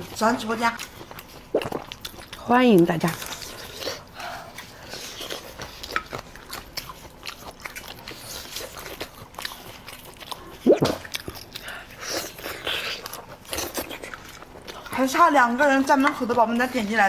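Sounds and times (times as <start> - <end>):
person chewing crunchy food: 0.0 - 16.9
wet mouth clicks: 1.5 - 2.1, 10.6 - 11.6.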